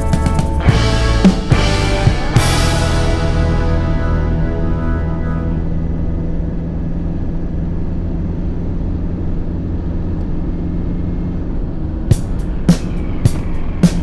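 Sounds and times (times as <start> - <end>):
music: 0.0 - 7.0, 12.1 - 14.0.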